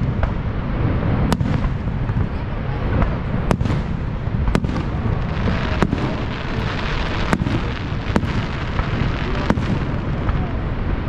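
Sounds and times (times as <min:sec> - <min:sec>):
low rumble: 0:00.0 - 0:11.0
firework shells bursting: 0:03.5 - 0:10.4.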